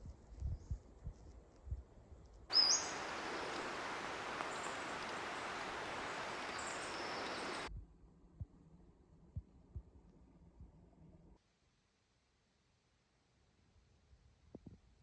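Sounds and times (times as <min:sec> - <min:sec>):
faint high chirps: 0:02.5 - 0:07.7
rising bird call: 0:02.5 - 0:07.7
stream water rushing: 0:02.5 - 0:07.7.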